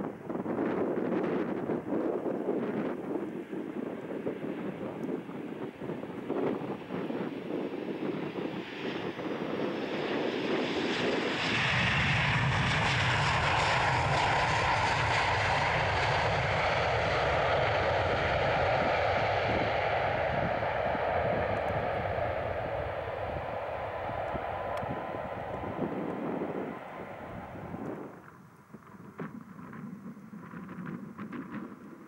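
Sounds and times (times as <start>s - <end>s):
jet airliner flying past: 0.0s - 32.0s.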